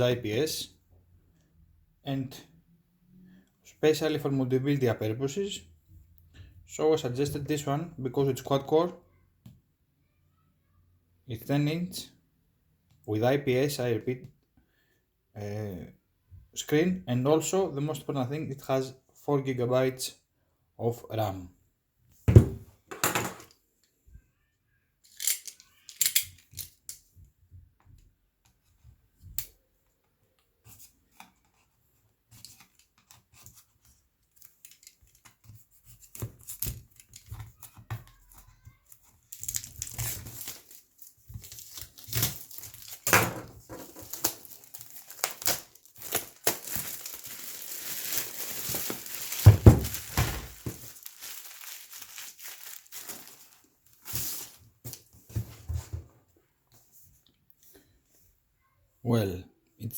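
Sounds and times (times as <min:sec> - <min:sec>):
packaging tearing and crinkling: 0:39.3 - 0:43.1, 0:43.9 - 0:54.6.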